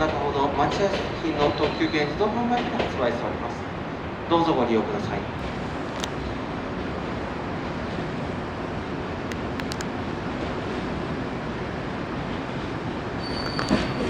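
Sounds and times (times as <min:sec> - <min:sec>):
electric train rumbling: 0:00.0 - 0:14.0
faint clicks: 0:09.3 - 0:09.9.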